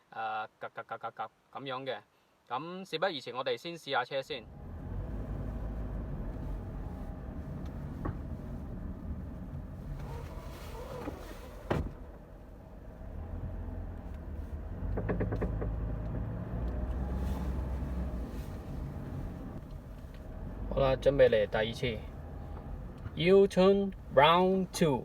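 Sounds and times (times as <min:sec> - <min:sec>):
car running rumble: 0:04.5 - 0:25.0.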